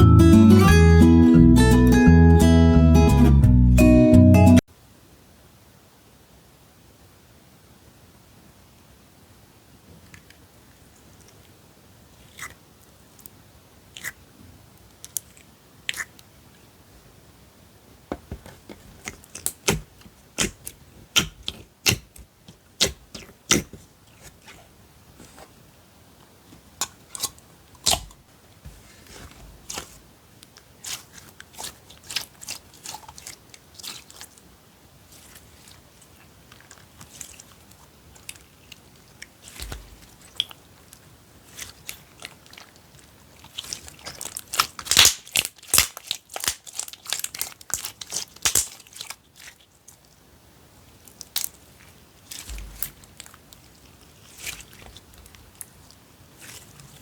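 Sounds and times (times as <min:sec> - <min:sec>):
hands squeezing slime: 0:13.9 - 0:14.2, 0:15.0 - 0:16.2, 0:18.8 - 0:25.6, 0:26.7 - 0:50.2, 0:50.8 - 0:57.0
crisp clicks and crunches: 0:18.7 - 0:24.6, 0:26.8 - 0:28.2, 0:28.8 - 0:50.2, 0:50.9 - 0:57.0.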